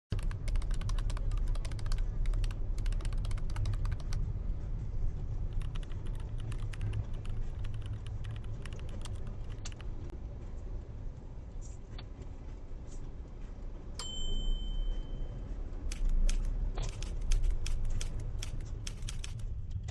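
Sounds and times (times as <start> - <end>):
rapid irregular keyboard clicking: 0.1 - 4.2, 5.5 - 10.0, 15.9 - 19.4.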